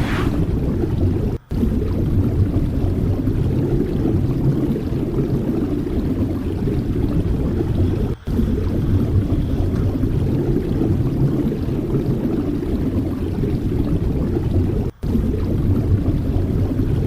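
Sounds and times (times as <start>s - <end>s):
wind buffeting microphone: 0.0s - 1.2s.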